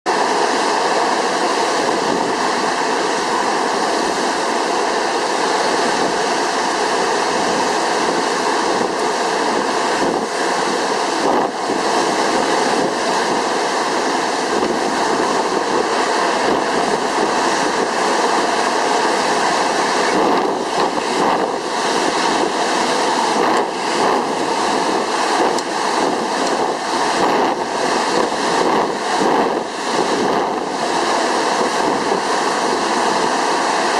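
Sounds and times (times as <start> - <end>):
wind buffeting microphone: 0.1 - 33.9.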